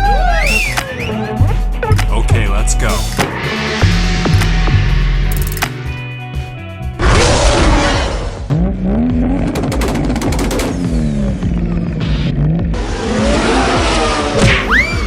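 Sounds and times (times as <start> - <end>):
car engine revving: 7.0 - 15.0.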